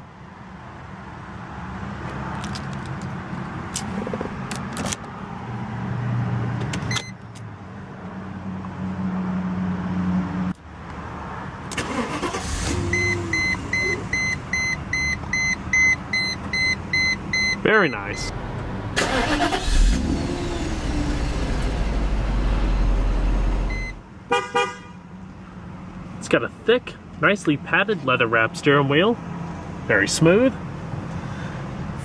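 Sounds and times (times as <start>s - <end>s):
electronic warning chime beeping: 12.9s - 18.3s, 23.7s - 24.0s.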